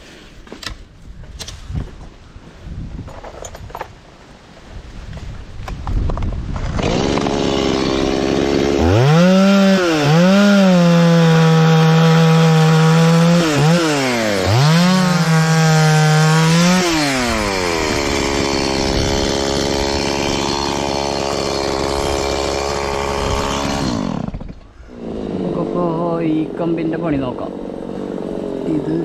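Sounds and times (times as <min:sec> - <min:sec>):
chainsaw cutting wood: 0:06.1 - 0:25.8.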